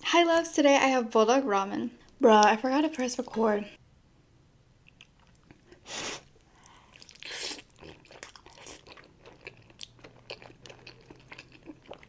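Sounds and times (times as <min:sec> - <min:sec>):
chewing with wet mouth clicks: 0:04.8 - 0:05.7, 0:06.6 - 0:12.0.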